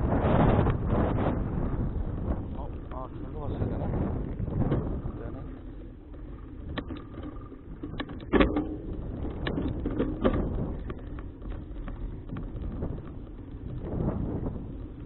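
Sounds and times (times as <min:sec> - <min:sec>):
wind and road rumble: 0:00.0 - 0:15.0
bicycle rattling clicks and knocks: 0:00.1 - 0:15.0.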